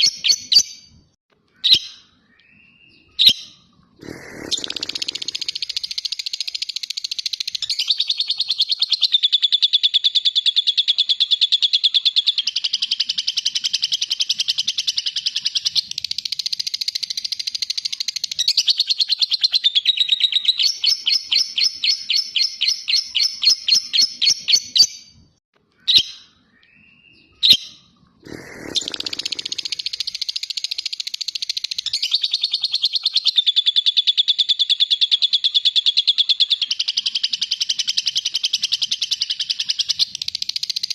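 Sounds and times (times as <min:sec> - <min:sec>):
lovebird trilling: 0:04.0 - 0:08.6, 0:28.3 - 0:30.8.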